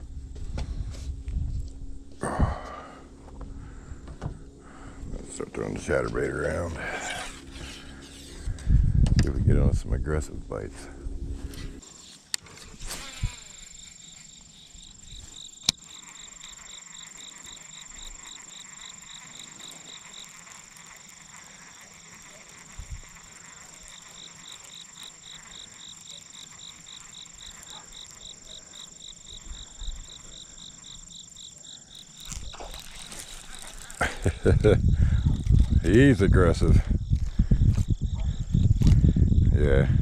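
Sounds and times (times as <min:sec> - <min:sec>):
insects chirping: 0:00.0 - 0:40.0
low thump: 0:03.2 - 0:04.4
sharp clicks: 0:15.6 - 0:15.9.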